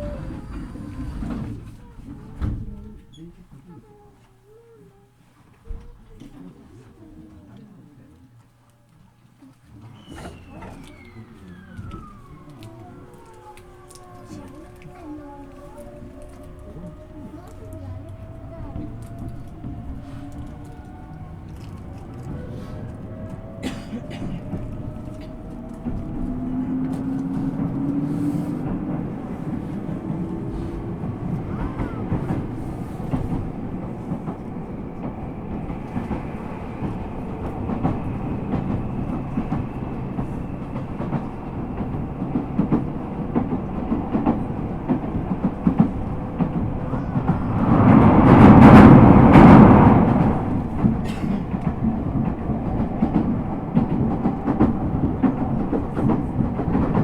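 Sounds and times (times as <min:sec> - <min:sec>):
train wheels clicking over rail joints: 0:00.0 - 0:03.2, 0:10.2 - 0:57.0
loud rushing noise: 0:46.3 - 0:51.6.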